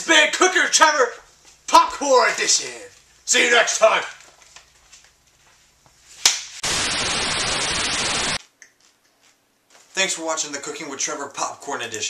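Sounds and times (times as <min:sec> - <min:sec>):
static hiss: 0:06.1 - 0:08.4.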